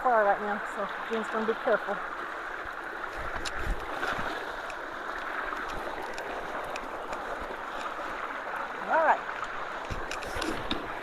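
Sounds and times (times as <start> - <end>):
creek water rushing: 0.0 - 11.0
wind buffeting microphone: 2.8 - 4.5.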